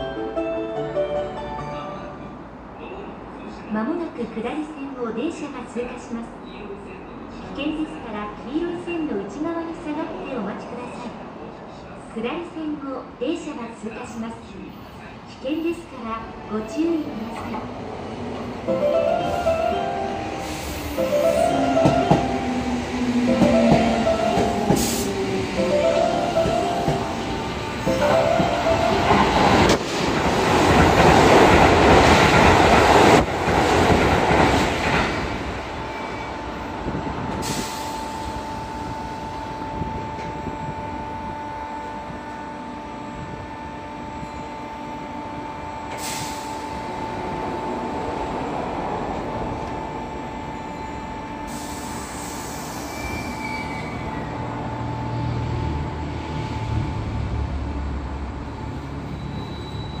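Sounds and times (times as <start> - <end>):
train passing at speed: 0.0 - 60.0
waiting train humming: 15.1 - 59.6
train rumbling pulling away: 16.3 - 41.3, 45.8 - 60.0.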